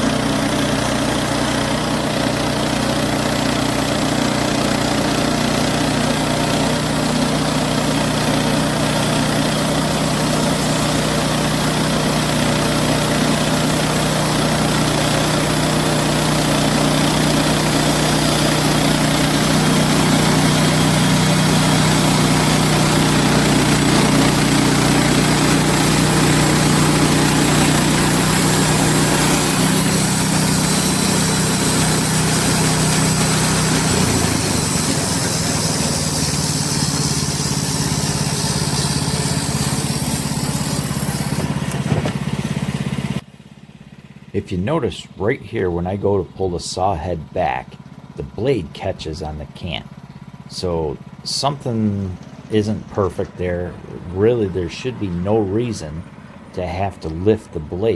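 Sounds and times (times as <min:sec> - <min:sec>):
band blade cutting log: 0:00.0 - 0:43.2
sawmill engine running: 0:00.0 - 0:57.9.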